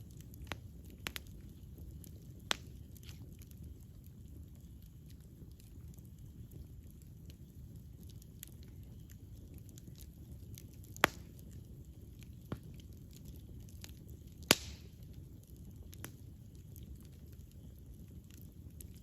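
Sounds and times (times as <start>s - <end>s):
fire crackling: 0.0s - 19.0s
wood fire burning: 0.0s - 19.0s
loud sharp pops: 14.5s - 14.9s.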